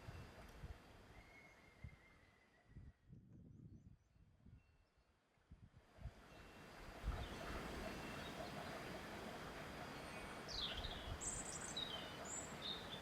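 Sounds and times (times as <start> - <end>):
wind gusts rumbling on microphone: 2.7 - 4.6, 5.5 - 8.2.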